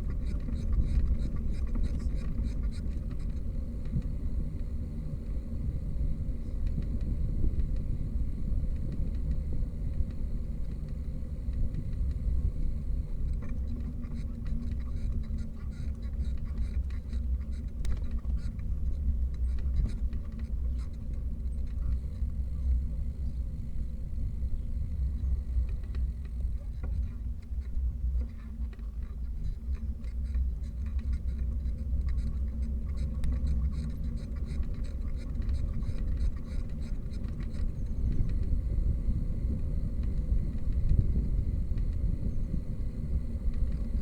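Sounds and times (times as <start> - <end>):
wind rumble: 31.8 - 44.0.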